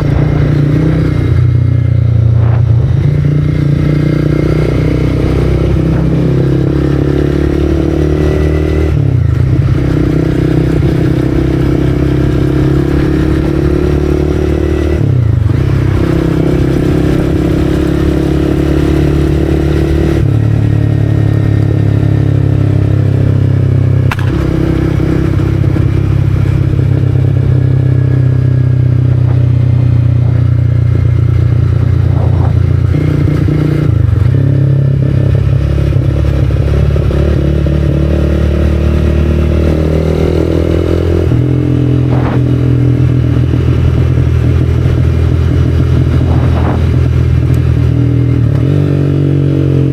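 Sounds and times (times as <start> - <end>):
motorcycle engine pulling: 23.8 - 34.7, 40.2 - 49.0.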